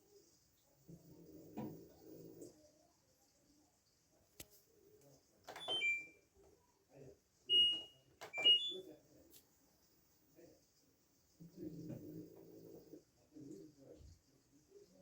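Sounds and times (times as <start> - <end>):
control panel beeps: 5.5 - 6.1, 7.5 - 8.8.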